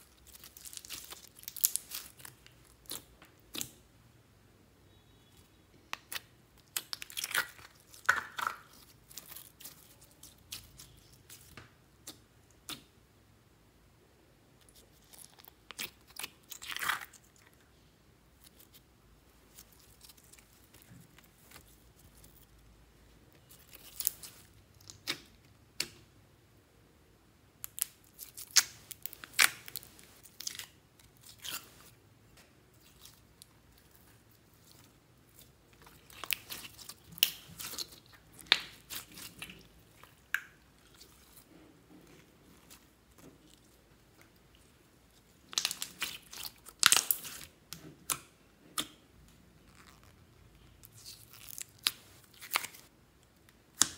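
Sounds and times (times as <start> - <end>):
slime clicking and crackling: 0.0 - 3.8, 6.0 - 11.5, 27.6 - 31.7, 32.7 - 41.5, 45.4 - 49.0.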